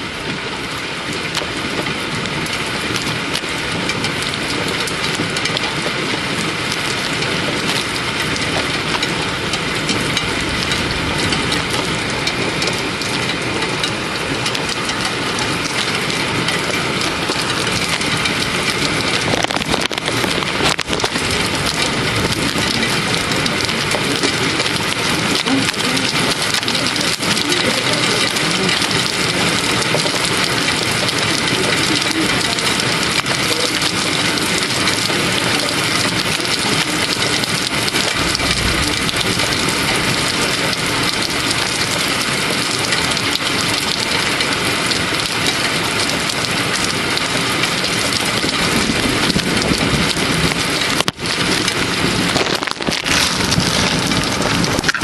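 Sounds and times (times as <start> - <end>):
heavy rain hissing: 0.0 - 55.0
low rumble: 4.1 - 26.6, 37.0 - 42.0.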